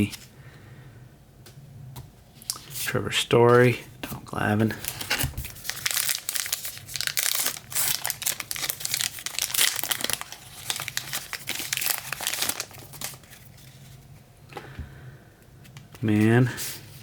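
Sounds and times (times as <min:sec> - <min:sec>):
plastic wrapper crinkling and tearing: 0:04.8 - 0:13.7.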